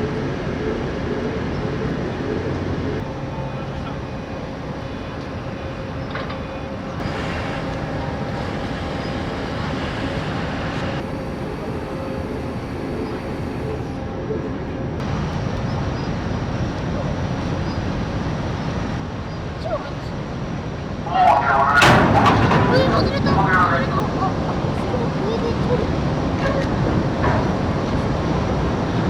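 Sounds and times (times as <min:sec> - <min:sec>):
faint steady hum: 0:00.0 - 0:26.8
ferry engine rumble: 0:00.0 - 0:29.0.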